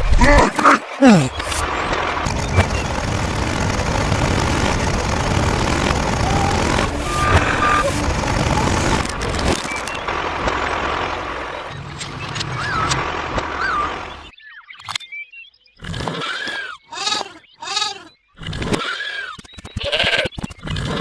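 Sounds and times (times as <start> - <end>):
vehicle engine rumbling: 2.2 - 14.2.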